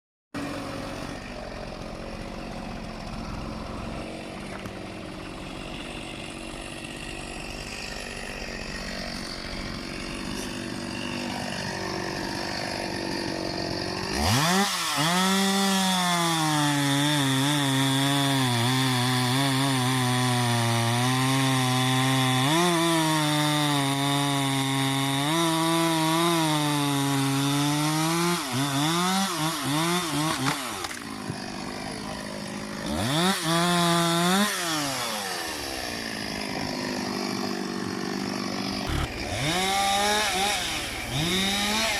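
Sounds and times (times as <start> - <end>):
engine revving under load: 38.8 - 41.9.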